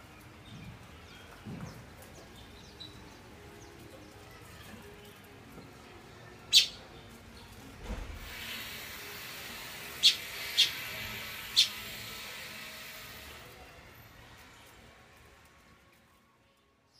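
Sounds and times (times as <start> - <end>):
small birds chirping: 0.0 - 7.6, 9.9 - 11.9.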